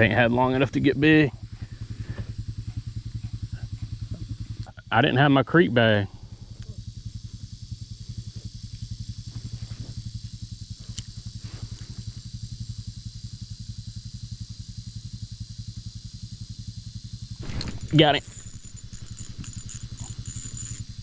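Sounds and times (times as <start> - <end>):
small engine idling: 0.0 - 21.0
high hiss: 17.4 - 21.0.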